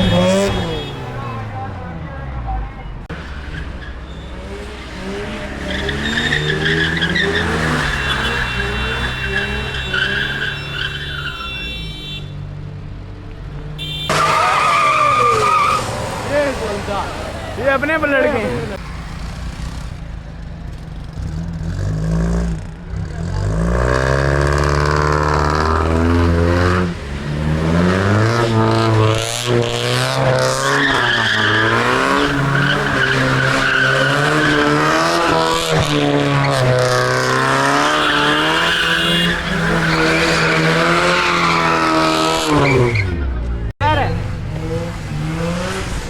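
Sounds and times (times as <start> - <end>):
car engine revving: 0.0 - 11.4, 13.5 - 46.0
tyres squealing: 5.5 - 12.4, 14.1 - 18.8, 28.2 - 43.4.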